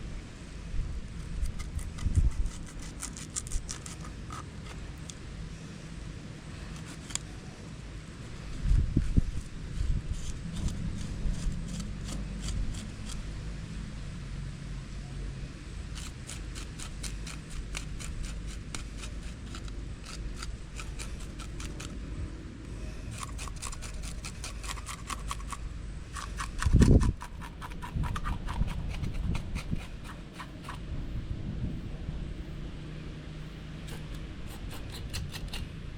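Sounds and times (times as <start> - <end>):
knife scraping fish: 1.2 - 5.1, 6.7 - 7.3, 10.2 - 13.2, 16.0 - 22.0, 23.1 - 30.8, 33.9 - 35.7.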